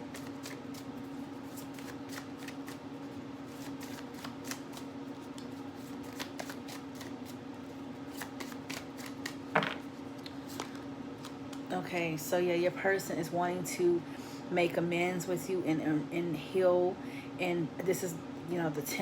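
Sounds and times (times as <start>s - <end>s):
cards being shuffled: 0.0s - 7.4s, 8.0s - 11.6s.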